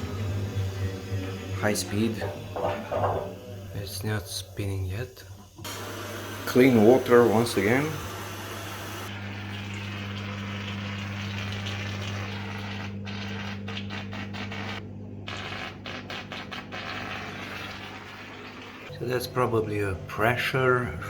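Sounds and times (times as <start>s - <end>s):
washing machine humming: 0.0s - 21.0s
water rushing into drum: 1.6s - 3.8s.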